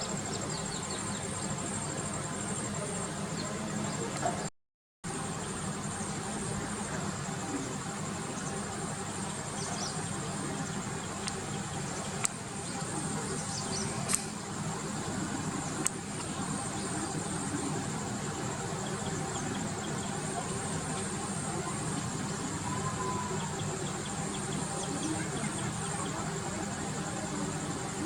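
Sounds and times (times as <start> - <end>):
crickets trilling: 0.0 - 4.5, 5.1 - 28.0
faint bird chirps: 16.5 - 26.6.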